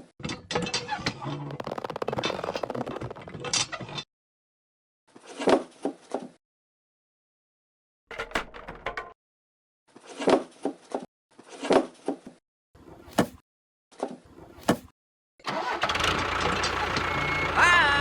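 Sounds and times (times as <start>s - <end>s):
engine cranking: 1.2s - 3.5s, 15.5s - 18.0s.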